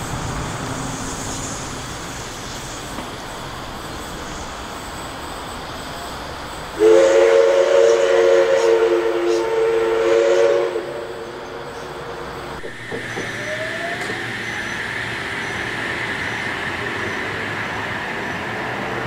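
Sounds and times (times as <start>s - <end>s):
electric train motors whining: 0.0s - 19.0s
high hiss: 0.0s - 19.0s
rail rumble: 0.0s - 19.0s
multi-note train whistle: 6.8s - 11.5s, 12.7s - 14.3s.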